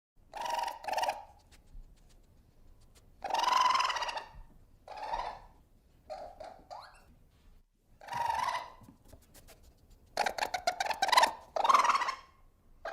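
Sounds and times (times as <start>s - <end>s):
animal calling: 0.3s - 1.6s, 3.2s - 7.1s, 8.0s - 9.0s, 10.2s - 12.9s.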